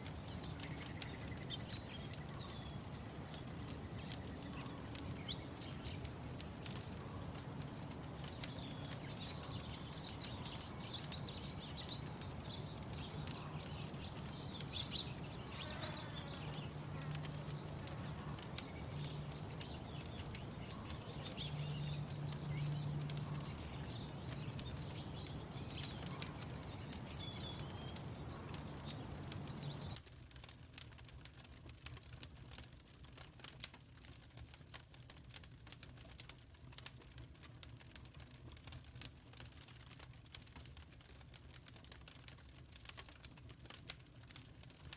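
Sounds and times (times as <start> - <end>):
songbirds chirping: 0.0 - 30.0
wood fire crackling: 0.0 - 44.9.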